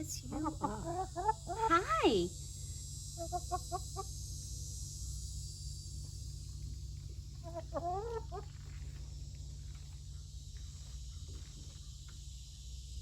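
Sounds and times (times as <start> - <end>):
hen clucking: 0.0 - 2.0, 7.4 - 8.5
low hum: 0.0 - 13.0.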